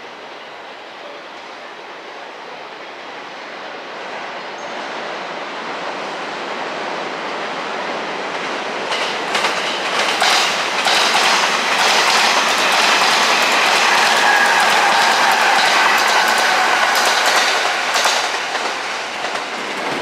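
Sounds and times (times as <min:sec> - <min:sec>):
electric train running past: 0:00.0 - 0:20.0
wheels clattering over rail joints: 0:08.9 - 0:20.0.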